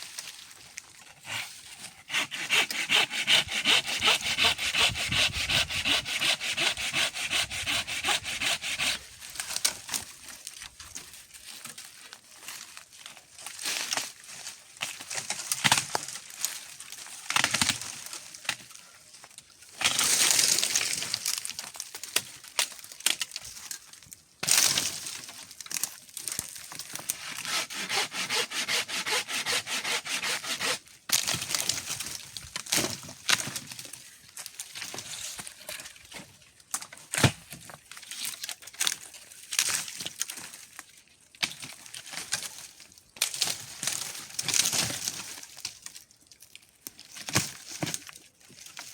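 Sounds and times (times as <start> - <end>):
branches cracking and snapping: 9.2 - 27.2, 31.1 - 36.1, 36.7 - 48.9
rapid rasping strokes: 27.5 - 30.8.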